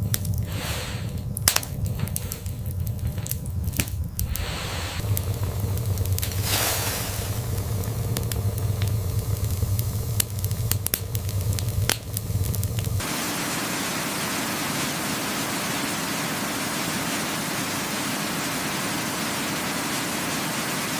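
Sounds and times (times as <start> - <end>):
low rumble: 0.0 - 13.0
fire crackling with pops: 0.0 - 20.9
static-like hiss: 0.0 - 20.9.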